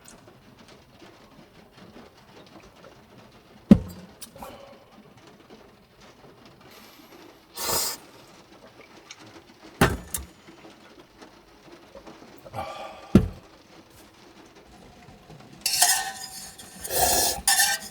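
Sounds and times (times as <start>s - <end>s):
short hiss: 6.8s - 8.3s
sharp knock: 13.2s - 13.4s.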